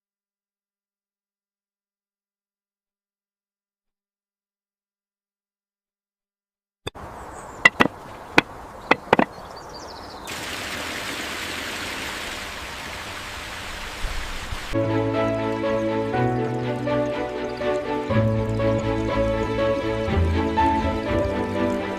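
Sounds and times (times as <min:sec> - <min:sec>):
sharp knocks: 0:07.6 - 0:09.4
steady hiss: 0:10.3 - 0:21.9.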